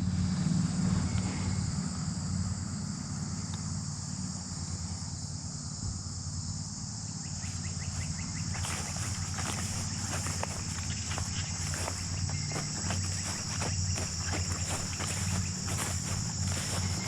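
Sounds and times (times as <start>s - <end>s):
insect chorus trilling: 0.0s - 17.0s
low steady rumble: 0.0s - 17.0s
soft rustles: 8.5s - 17.0s.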